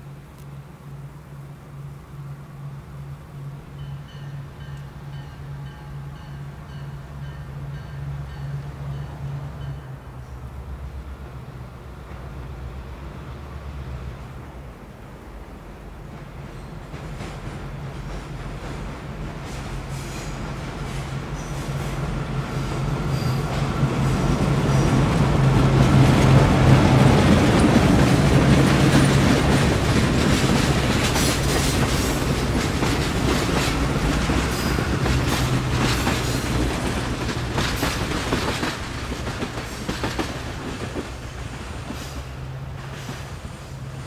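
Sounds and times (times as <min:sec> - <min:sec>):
locomotive low drone: 0:00.0 - 0:16.8
train wheels clickety-clack: 0:16.0 - 0:44.0.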